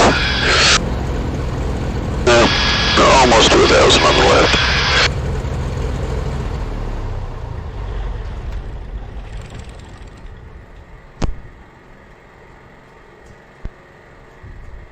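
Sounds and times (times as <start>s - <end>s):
aircraft engines running down: 0.0s - 14.9s.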